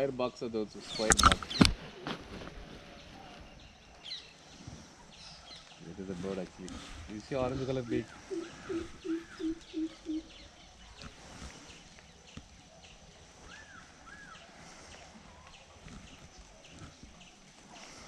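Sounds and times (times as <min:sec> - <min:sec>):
bird calling low notes: 0:07.6 - 0:10.6
high arched bird chirps: 0:07.9 - 0:10.5.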